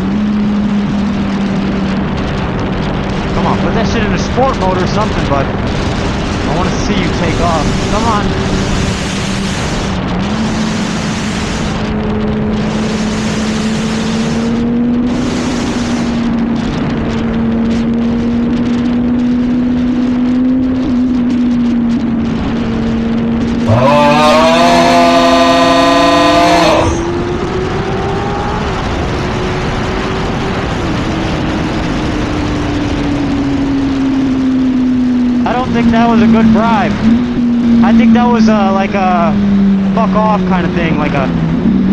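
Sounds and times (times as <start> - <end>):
heavy wind noise: 0.0 - 41.9
motorcycle engine revving: 0.0 - 41.9.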